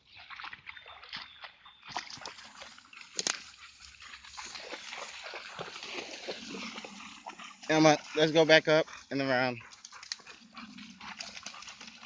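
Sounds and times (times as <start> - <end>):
water splashing from wading: 0.0 - 9.1.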